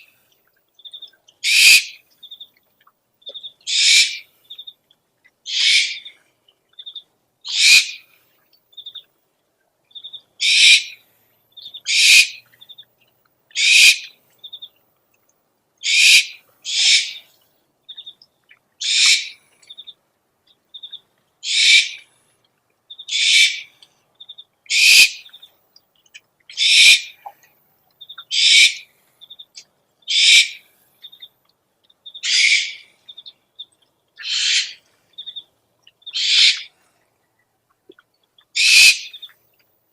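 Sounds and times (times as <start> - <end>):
owl hissing screeches: 1.4 - 2.0, 3.7 - 4.2, 5.5 - 6.1, 7.5 - 8.0, 10.4 - 11.0, 11.9 - 12.4, 13.6 - 14.0, 15.8 - 17.2, 18.8 - 19.4, 21.4 - 22.0, 23.1 - 23.7, 24.7 - 25.2, 26.6 - 27.1, 28.3 - 28.8, 30.1 - 30.6, 32.2 - 32.9, 34.2 - 34.8, 36.2 - 36.7, 38.6 - 39.2.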